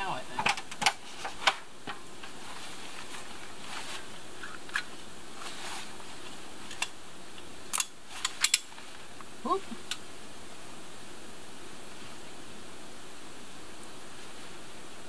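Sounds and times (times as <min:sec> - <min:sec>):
light rain falling: 0:00.0 - 0:15.0.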